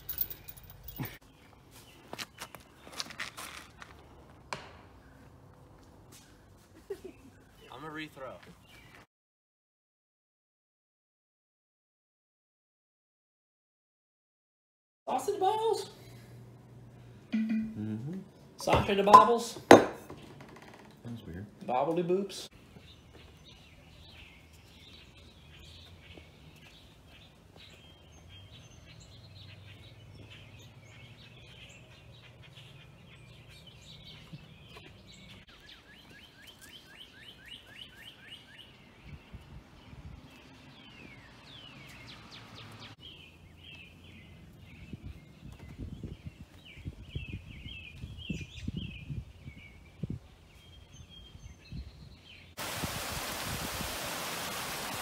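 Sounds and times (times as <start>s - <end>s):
songbirds singing: 0.0s - 3.2s, 4.0s - 9.1s, 18.6s - 52.7s
low steady hum: 15.9s - 18.6s.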